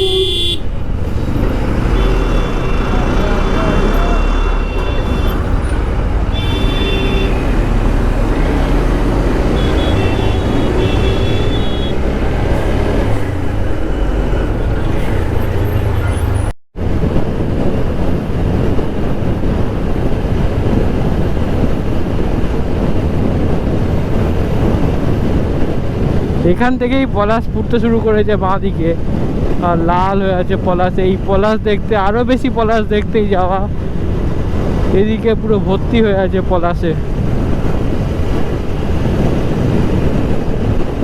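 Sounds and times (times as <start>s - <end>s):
vehicle horns: 0.0s - 13.4s
motorcycle engine and wind rumble: 0.0s - 41.0s
traffic: 0.0s - 41.0s.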